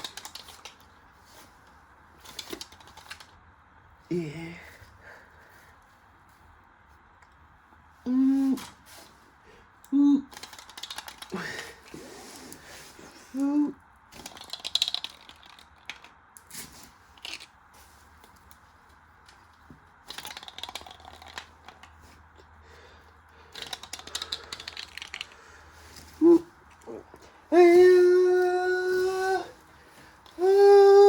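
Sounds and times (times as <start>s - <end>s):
light clicking and crackling: 0.0s - 1.0s, 9.8s - 12.6s, 23.5s - 26.1s
short vocal sound: 8.0s - 8.8s, 26.2s - 29.6s.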